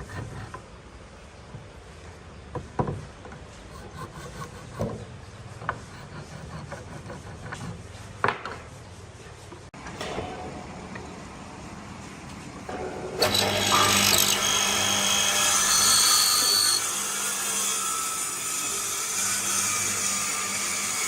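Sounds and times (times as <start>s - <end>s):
wood scraping on wood: 2.9s - 9.8s.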